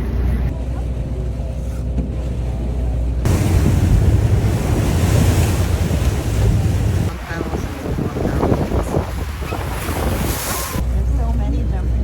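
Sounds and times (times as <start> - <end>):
boat low rumble: 0.0 - 12.0
wind buffeting microphone: 3.2 - 10.8
rushing water: 3.3 - 10.9.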